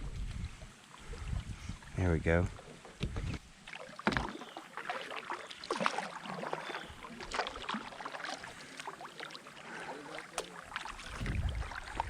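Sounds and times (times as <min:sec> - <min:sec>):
paddle splashing water: 0:02.6 - 0:12.0.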